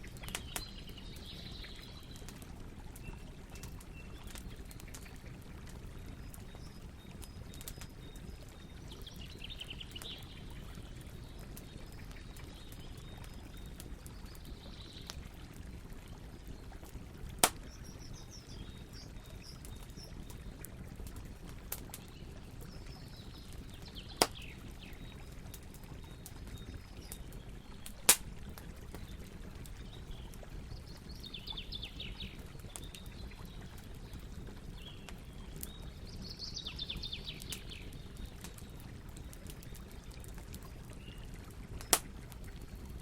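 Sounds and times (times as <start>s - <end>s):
campfire burning with crackles: 0.0s - 43.0s
loud sharp fire pops: 17.4s - 17.8s, 28.0s - 28.4s.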